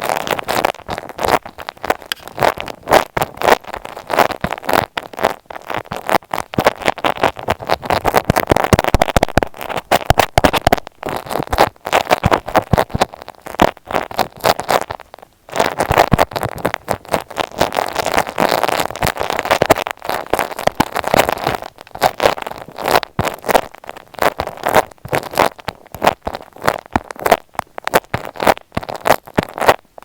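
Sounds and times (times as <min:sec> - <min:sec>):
crackling of handled microphone: 0:00.0 - 0:30.0.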